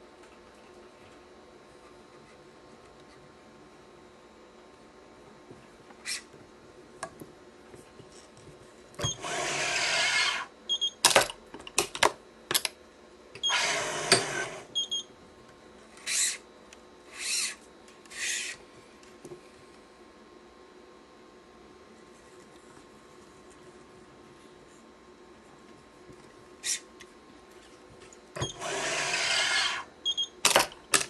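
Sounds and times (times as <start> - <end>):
machine clamps clicking: 30.4 - 31.0.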